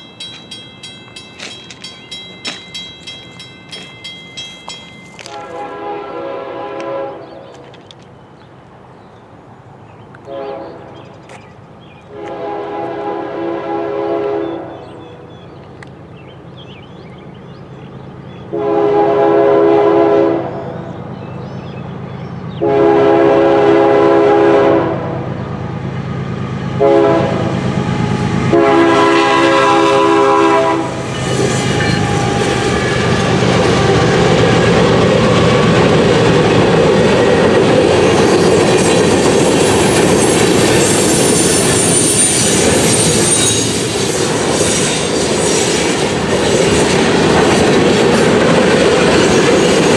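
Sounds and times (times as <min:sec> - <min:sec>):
locomotive engines running: 0:00.0 - 0:05.8, 0:29.7 - 0:49.9
steel wheels on rails: 0:00.0 - 0:06.0, 0:27.5 - 0:49.9
locomotive air horn: 0:05.2 - 0:07.4, 0:10.3 - 0:10.9, 0:12.1 - 0:14.8, 0:18.5 - 0:20.6, 0:22.6 - 0:25.2, 0:26.8 - 0:27.6, 0:28.5 - 0:34.3.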